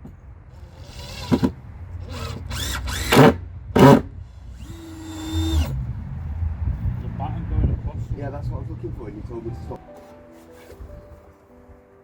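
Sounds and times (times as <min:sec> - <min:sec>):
power drill bursts: 0:00.6 - 0:05.8.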